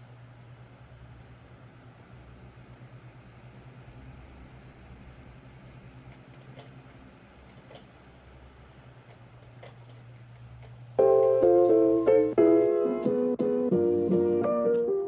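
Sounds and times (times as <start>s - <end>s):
faint low hum: 0.0s - 15.0s
piano music: 11.0s - 15.0s.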